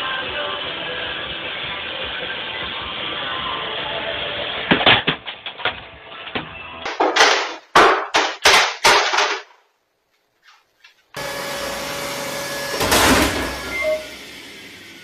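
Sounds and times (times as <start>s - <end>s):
robot vacuum knocking down stairs: 12.7s - 14.0s.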